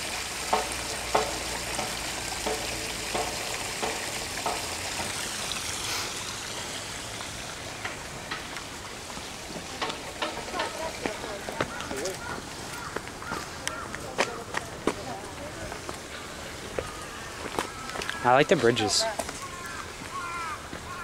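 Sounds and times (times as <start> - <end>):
steady hiss: 0.0 - 13.8
footsteps walking: 8.3 - 18.2.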